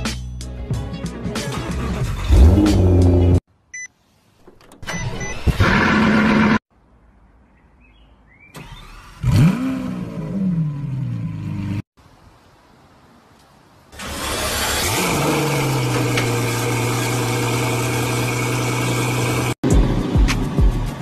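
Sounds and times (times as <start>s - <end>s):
car engine starting and revving: 1.5s - 3.4s, 4.9s - 6.7s, 8.5s - 11.9s, 13.9s - 21.0s.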